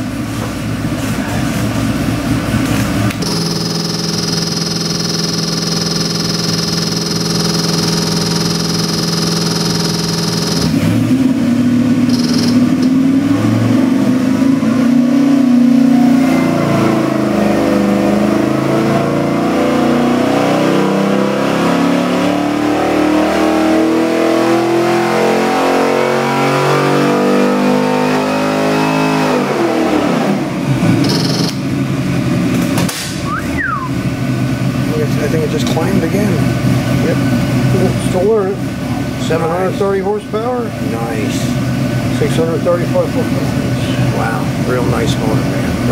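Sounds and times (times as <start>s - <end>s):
engine revving on a dyno: 0.0s - 45.9s.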